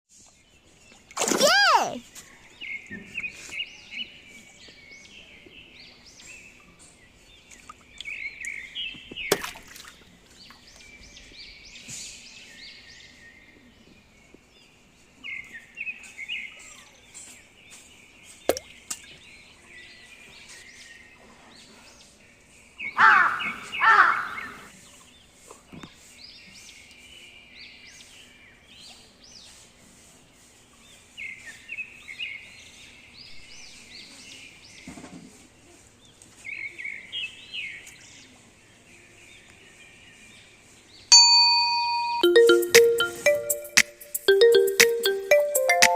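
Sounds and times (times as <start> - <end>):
birds chirping: 22.4 - 24.7
loud pitched bird calls: 22.8 - 24.7.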